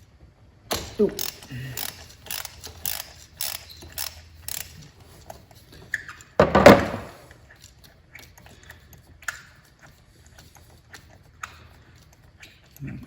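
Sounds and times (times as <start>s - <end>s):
tools clicking and knocking: 0.7s - 4.8s, 6.4s - 7.2s.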